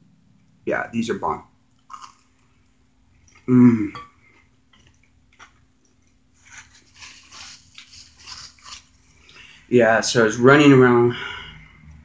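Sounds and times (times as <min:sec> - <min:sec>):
soft mouth-open chewing: 0:01.7 - 0:09.4
voice humming: 0:03.5 - 0:04.0.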